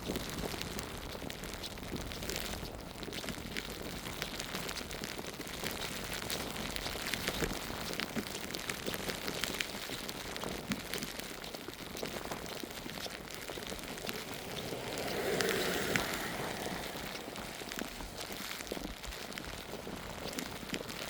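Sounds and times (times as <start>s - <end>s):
patter of falling snow: 0.0s - 21.0s
small irregular clicks: 0.0s - 21.0s
footsteps crunching through snow: 11.8s - 21.0s.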